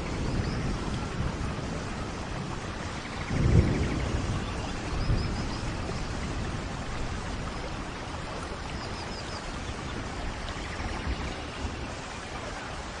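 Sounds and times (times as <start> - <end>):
low rumble of thunder: 0.0 - 13.0
steady rain: 0.0 - 13.0.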